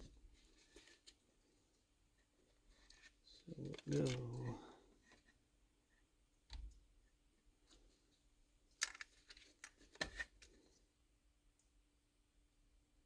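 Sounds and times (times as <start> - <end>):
plastic plug clicks and rustles: 8.7 - 10.6.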